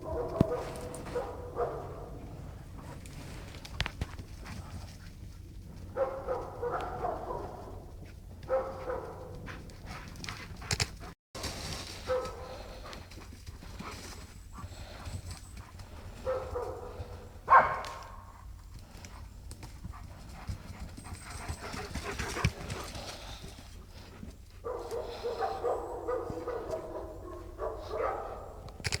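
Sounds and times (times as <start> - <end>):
puppies panting: 12.0 - 28.7.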